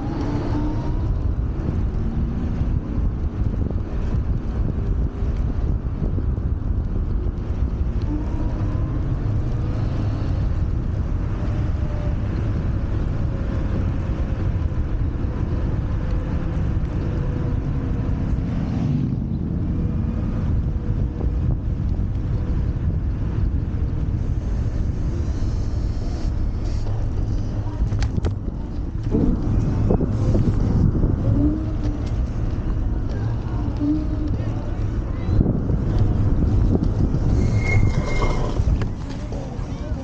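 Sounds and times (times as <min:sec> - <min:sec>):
road noise: 0:00.0 - 0:40.0
wind buffeting microphone: 0:00.0 - 0:40.0.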